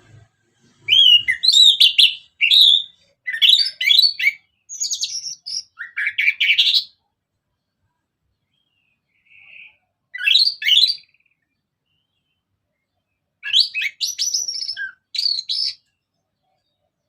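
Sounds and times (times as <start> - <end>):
bird singing whistled phrases: 0.8 - 7.0, 8.6 - 11.3, 13.4 - 15.8.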